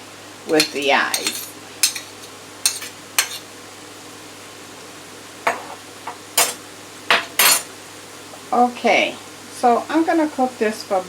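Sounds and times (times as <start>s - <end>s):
vegetables sizzling in a frying pan: 0.0s - 11.0s
utensil scraping a pan: 0.5s - 3.5s.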